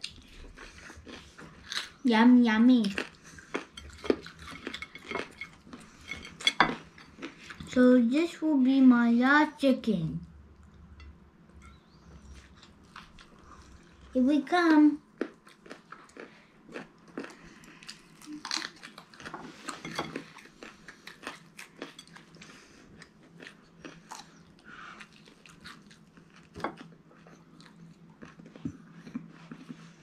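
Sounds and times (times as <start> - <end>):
faint low hum: 0.0 - 30.0
crunchy chewing: 15.2 - 29.8.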